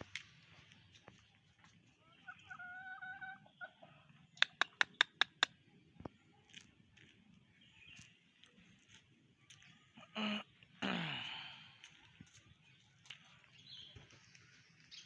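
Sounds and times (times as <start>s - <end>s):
sharp clicks: 4.4s - 5.5s.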